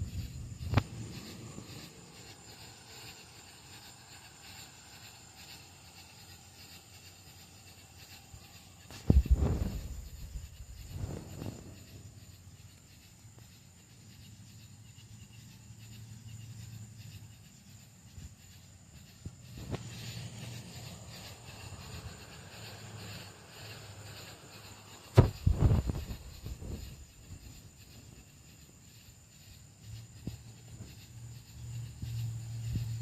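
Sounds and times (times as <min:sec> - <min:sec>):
faint steady hiss: 0:00.0 - 0:33.0
low rumble: 0:09.0 - 0:12.0.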